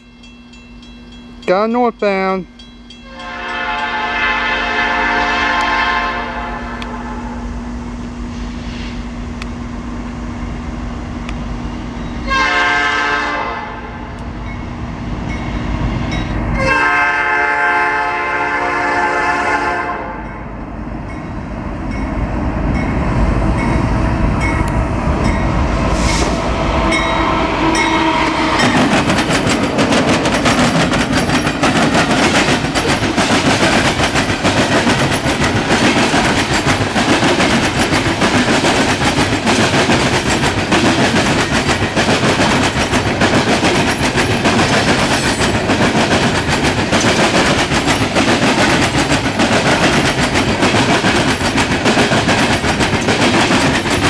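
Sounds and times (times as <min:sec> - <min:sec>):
train wheels clattering over rails: 0:22.7 - 0:54.0.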